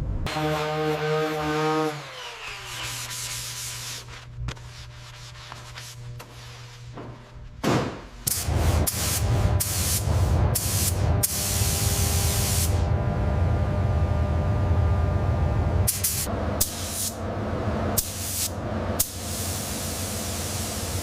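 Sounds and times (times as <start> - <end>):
rubbing and scraping: 2.4 - 7.6
steady low hum: 2.6 - 21.0
low rumble: 7.2 - 16.6
compressed air hissing: 8.3 - 12.8, 15.9 - 17.2, 18.0 - 21.0.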